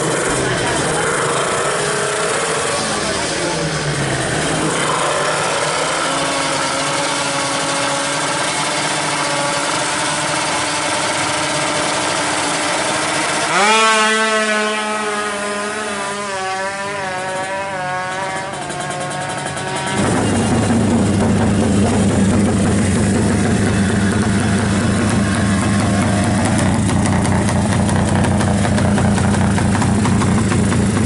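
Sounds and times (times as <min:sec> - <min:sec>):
motorcycle engine revving: 0:00.0 - 0:31.0
scooter engine: 0:00.0 - 0:31.0.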